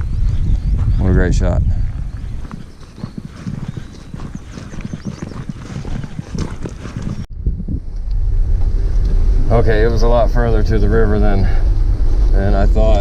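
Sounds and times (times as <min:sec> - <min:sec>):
footsteps on a trail: 0:00.0 - 0:07.3
truck driving rumble: 0:07.3 - 0:13.0.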